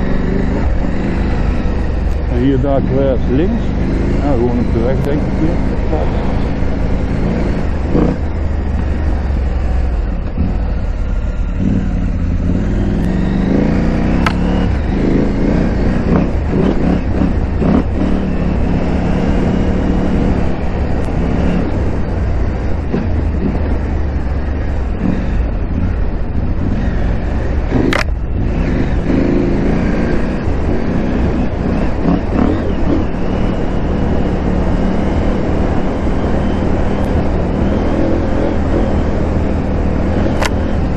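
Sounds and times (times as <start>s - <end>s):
motorcycle engine running: 0.0s - 40.9s
sharp click: 14.2s - 14.5s, 27.8s - 28.2s, 40.3s - 40.7s.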